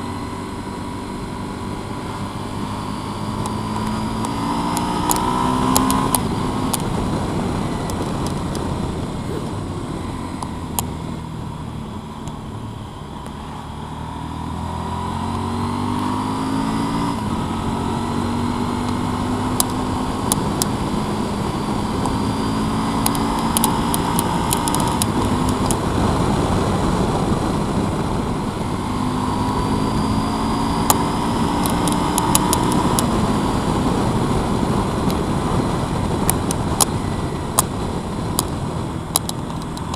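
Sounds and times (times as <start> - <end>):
motorcycle engine shifting gears: 0.0 - 39.9
sharp clicks: 3.4 - 6.9, 23.0 - 25.8, 31.6 - 33.1, 38.4 - 39.9.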